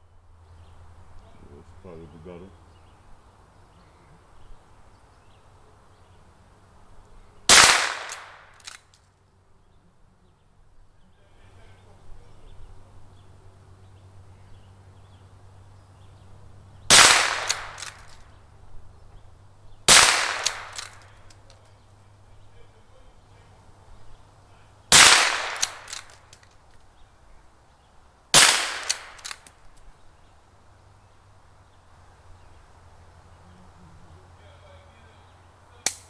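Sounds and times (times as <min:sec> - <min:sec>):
rifle shots with echo: 0:07.5 - 0:08.8, 0:16.9 - 0:18.2, 0:19.9 - 0:21.2, 0:24.9 - 0:26.2, 0:28.3 - 0:29.5.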